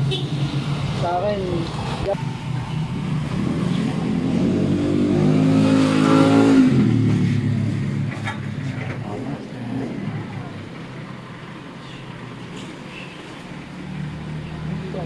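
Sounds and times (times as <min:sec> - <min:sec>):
motorcycle engine revving: 0:00.0 - 0:10.6.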